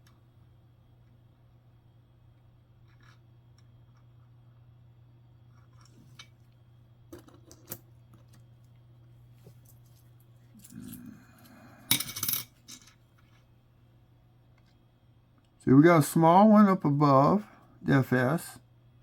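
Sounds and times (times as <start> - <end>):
coins clinking: 11.9 - 12.9.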